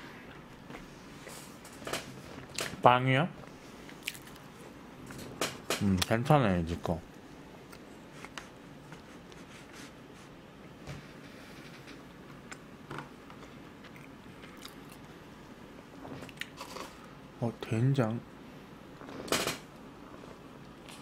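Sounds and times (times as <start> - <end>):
chewing soft cake: 3.8 - 4.6, 13.3 - 17.1, 19.9 - 21.0.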